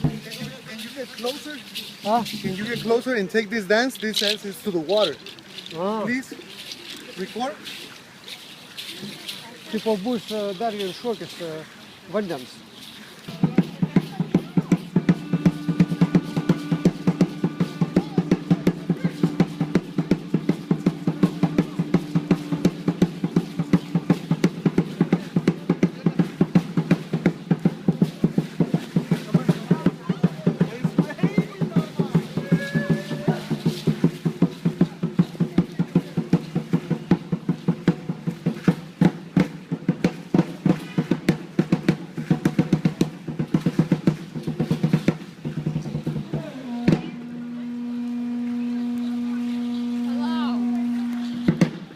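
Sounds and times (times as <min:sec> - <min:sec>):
fast drum beat: 0:00.0 - 0:04.7, 0:13.3 - 0:48.0
steady low drone: 0:14.7 - 0:25.0, 0:46.5 - 0:51.9.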